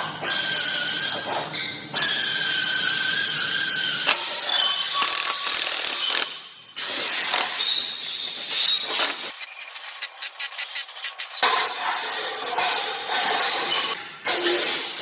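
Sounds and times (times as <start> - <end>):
power wrench whining and ratcheting: 4.1 - 6.4, 7.0 - 7.7, 8.6 - 9.5.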